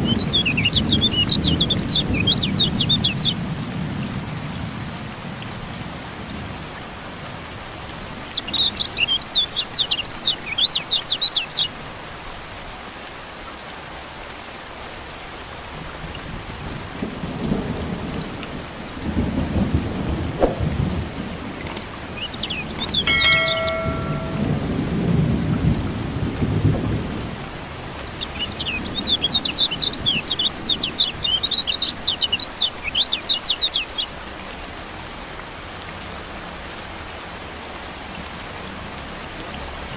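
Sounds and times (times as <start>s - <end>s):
steady rain: 0.0s - 39.9s
bird twittering: 0.1s - 3.4s, 21.7s - 24.5s, 27.9s - 34.1s
low thunder: 16.6s - 21.6s, 23.7s - 27.4s.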